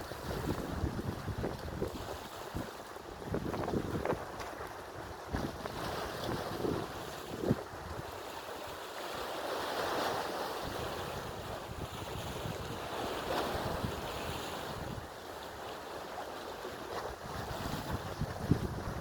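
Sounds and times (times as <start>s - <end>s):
wind buffeting microphone: 0.0s - 4.5s, 5.2s - 8.2s, 10.7s - 15.1s, 17.0s - 19.0s
sea waves washing: 5.5s - 19.0s.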